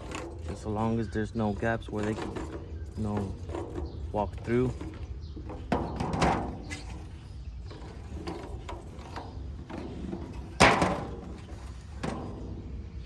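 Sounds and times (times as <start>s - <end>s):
stick scraping and tapping pan: 0.0s - 12.7s.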